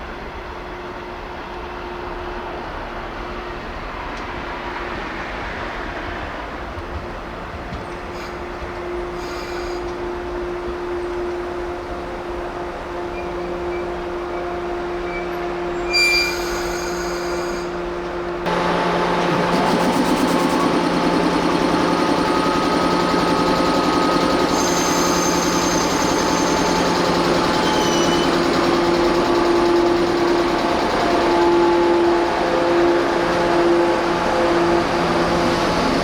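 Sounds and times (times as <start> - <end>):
train running and rail noise: 0.0 - 36.0
high whine: 18.5 - 35.7.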